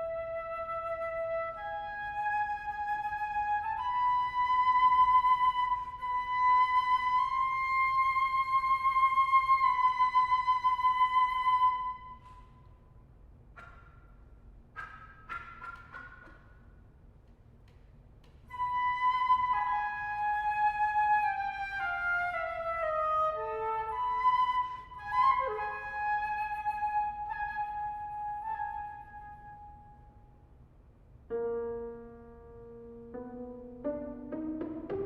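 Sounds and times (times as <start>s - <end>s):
flute solo: 0.0s - 12.6s, 18.5s - 30.2s
low piano chord: 31.3s - 35.0s.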